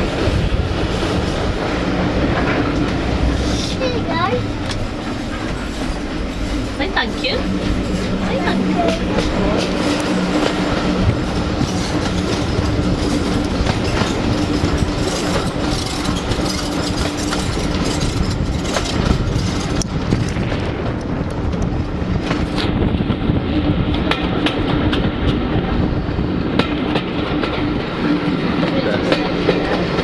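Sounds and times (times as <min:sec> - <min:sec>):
wheels clicking over rail joints: 0:00.0 - 0:23.0
train wheels rumbling: 0:00.0 - 0:30.0.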